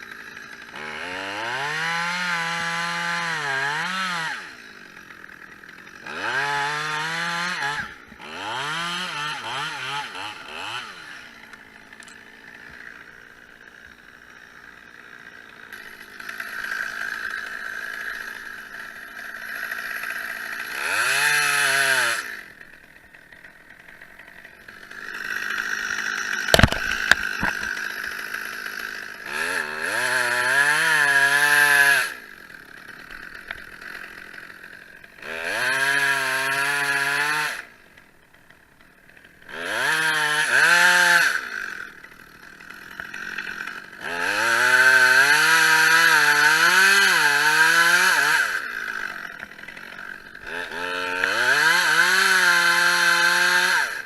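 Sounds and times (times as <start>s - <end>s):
chainsaw idling and revving: 0.0s - 54.0s
sharp knock: 26.5s - 27.7s.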